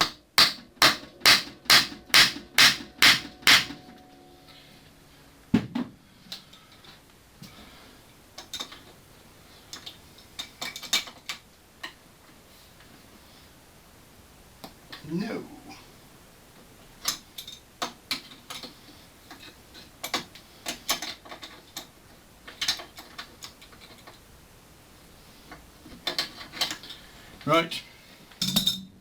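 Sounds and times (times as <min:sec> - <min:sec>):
hammer striking metal bolt: 0:00.0 - 0:03.9.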